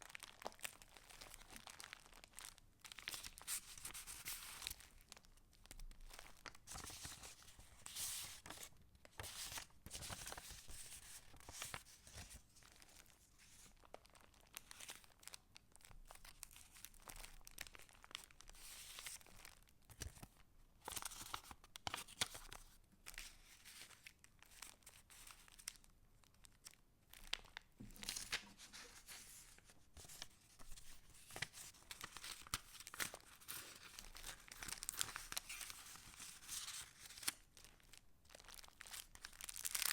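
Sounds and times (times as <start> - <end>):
paper pages rustling: 6.4 - 13.7, 20.9 - 24.0, 27.9 - 37.4.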